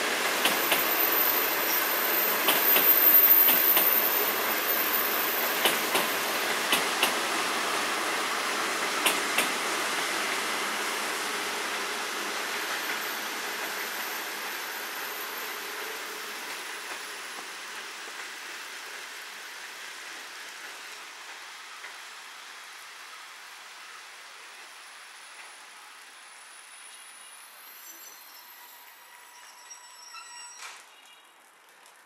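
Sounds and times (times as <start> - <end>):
train rumbling: 0.0 - 30.2
wheels clacking over rail joints: 0.3 - 1.8, 2.4 - 7.4.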